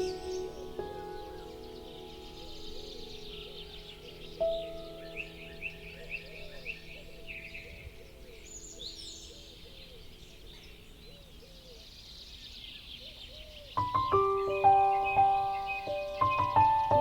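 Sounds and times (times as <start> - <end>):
birds chirping and trilling: 0.0 - 17.0.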